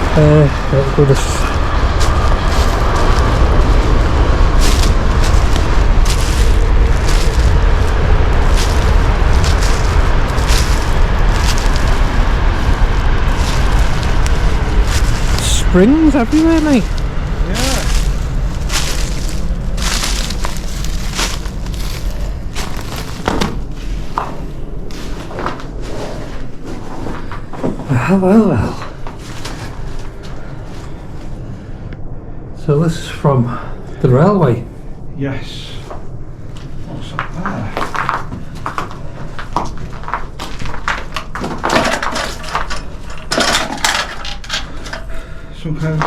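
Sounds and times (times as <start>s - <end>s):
footsteps crunching on rough ground: 0.0s - 27.9s, 28.8s - 31.0s, 36.6s - 44.8s
steady low rumble: 0.0s - 46.0s
rustling: 1.1s - 27.6s, 28.9s - 31.2s
scraping: 1.2s - 27.6s, 37.8s - 45.3s.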